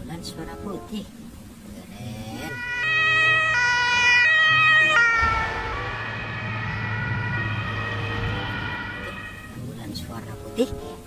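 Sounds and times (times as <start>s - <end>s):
toy siren hi-lo wail: 2.5s - 9.5s.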